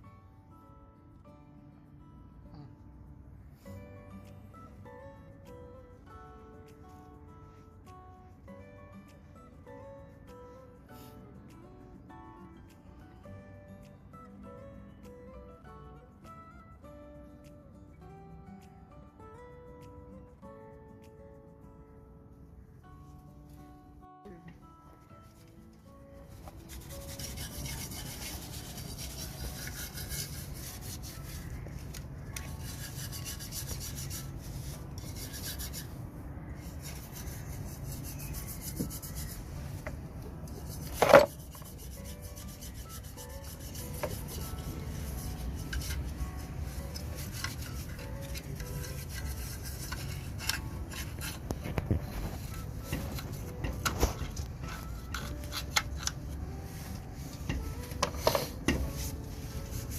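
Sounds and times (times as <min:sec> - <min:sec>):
scraping on rusted metal: 0:26.6 - 0:36.0, 0:36.6 - 0:39.4, 0:40.6 - 0:56.4.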